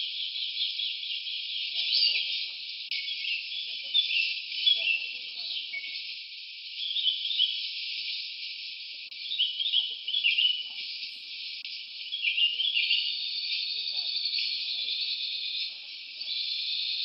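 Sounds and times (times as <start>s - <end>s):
warbling chirping calls: 0.0s - 17.0s
high-pitched insect drone: 12.8s - 17.0s.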